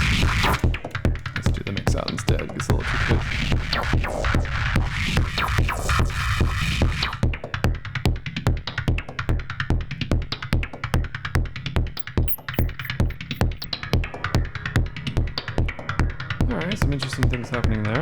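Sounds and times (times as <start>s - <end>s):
fast noise clicks: 0.0s - 7.3s, 12.0s - 13.8s
synthesized kick drum: 0.0s - 18.0s.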